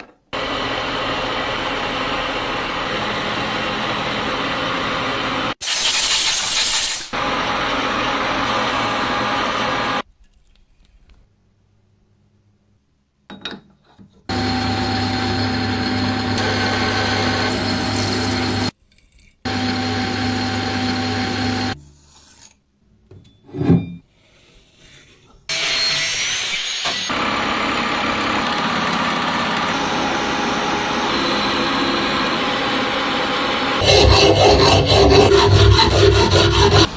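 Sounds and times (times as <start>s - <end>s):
power tool abrading metal: 8.4s - 10.0s, 14.3s - 18.7s, 25.5s - 36.9s
steady motor hum: 14.4s - 18.7s, 29.7s - 36.9s.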